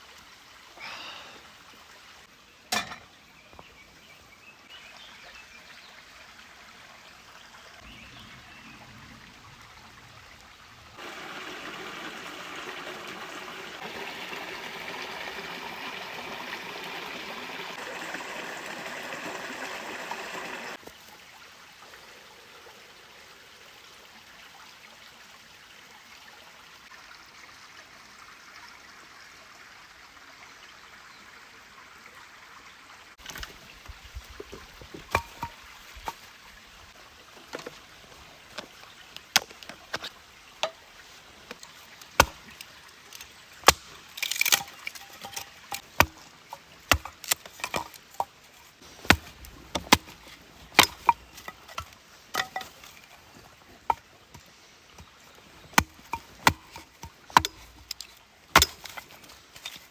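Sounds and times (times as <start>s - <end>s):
firewood cracking and knocking: 34.4s - 36.2s, 43.2s - 54.1s, 55.0s - 59.9s.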